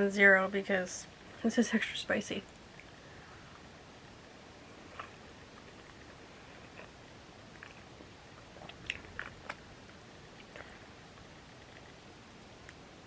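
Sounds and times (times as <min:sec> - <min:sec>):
person chewing food: 0:04.7 - 0:12.9.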